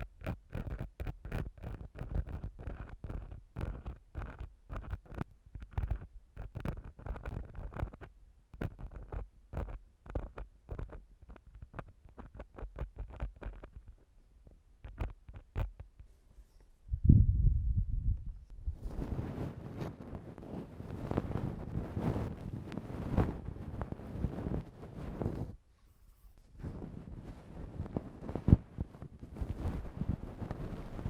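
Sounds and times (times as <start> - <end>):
tool scratching on microphone: 0.0 - 14.0, 14.8 - 16.6, 18.8 - 31.0
low muffled rubbing: 18.4 - 31.0.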